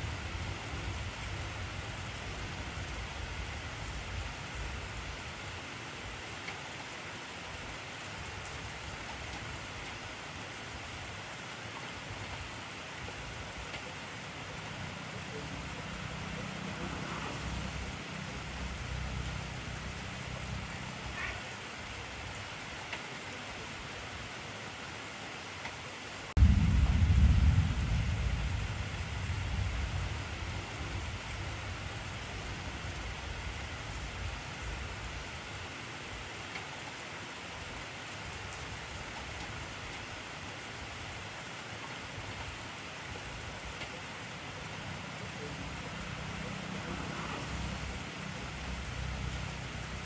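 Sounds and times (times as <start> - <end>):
heavy rain hissing: 0.0 - 50.0
low rumble: 26.4 - 32.5.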